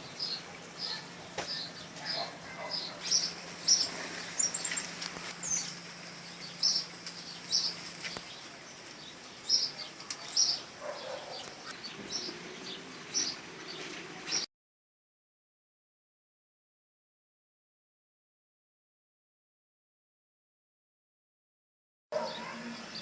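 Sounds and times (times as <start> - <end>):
small birds chirping: 0.0 - 14.5, 22.2 - 23.0.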